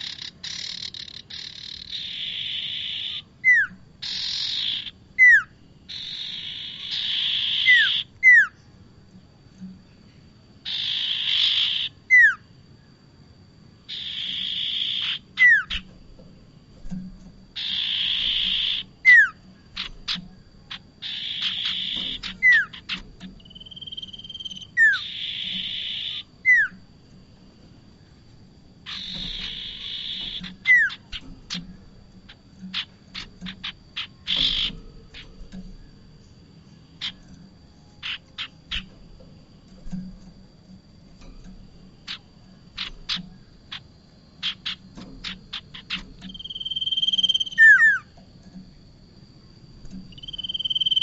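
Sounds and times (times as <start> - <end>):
bird rapid high trill: 0.0 - 8.6, 10.6 - 12.4, 13.9 - 15.9, 17.6 - 26.8, 28.8 - 31.7, 32.3 - 35.4, 42.1 - 48.1, 50.1 - 51.0
bird whistled notes: 0.0 - 8.6, 10.7 - 12.4, 13.9 - 15.9, 17.6 - 19.4, 21.0 - 26.8, 28.9 - 31.2, 45.7 - 48.1, 50.1 - 51.0
bird harsh buzzing: 0.0 - 8.8, 10.0 - 12.6, 13.8 - 48.9, 49.7 - 51.0
faint high whine: 0.0 - 51.0.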